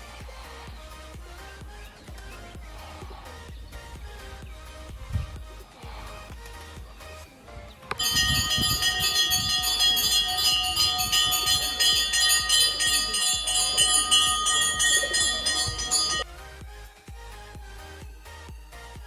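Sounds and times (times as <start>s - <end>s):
metal bell rung rapidly: 7.9s - 16.3s.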